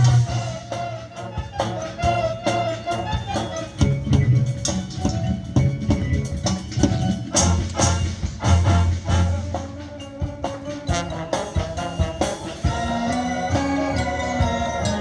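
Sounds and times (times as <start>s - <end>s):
horns holding chords: 0.0s - 4.2s, 7.3s - 15.0s
marching band playing: 0.0s - 15.0s
low brass and drum hits: 7.3s - 9.8s.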